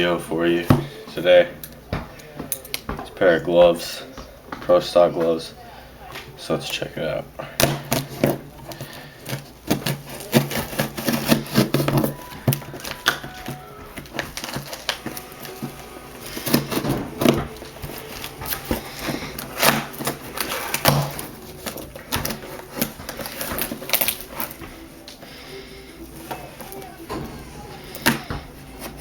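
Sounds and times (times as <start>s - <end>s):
cardboard packaging crackling and tearing: 7.5s - 29.0s.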